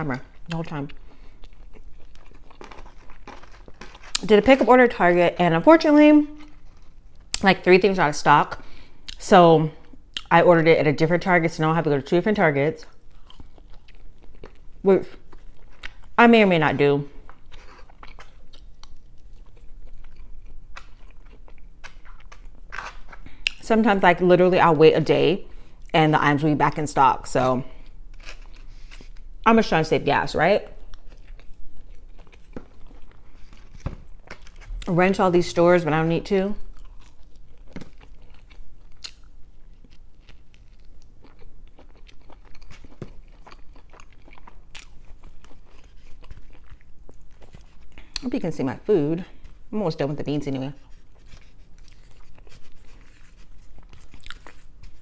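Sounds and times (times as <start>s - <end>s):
chewing food: 0.1s - 4.4s, 12.8s - 16.2s, 17.1s - 23.6s, 30.8s - 35.0s, 36.6s - 48.3s, 50.8s - 55.0s.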